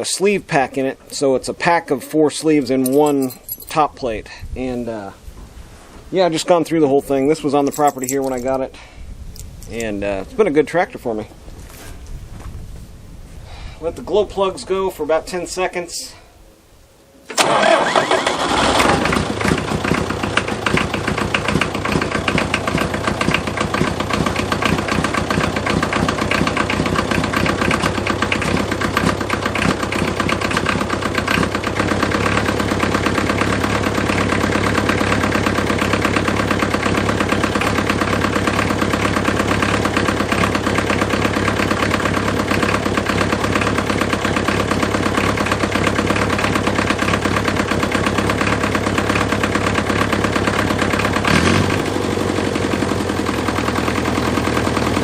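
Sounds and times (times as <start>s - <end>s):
diesel tractor engine starting and idling: 17.3s - 55.0s.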